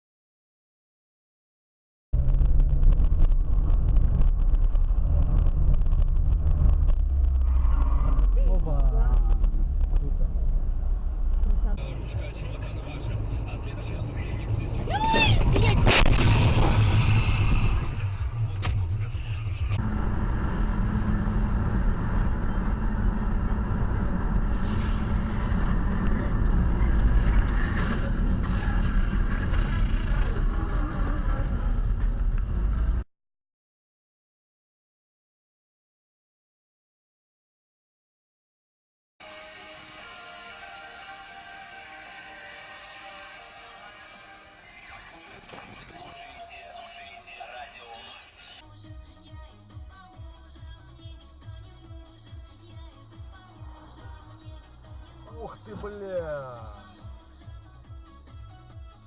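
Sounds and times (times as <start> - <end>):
car driving rumble: 2.2 - 33.0.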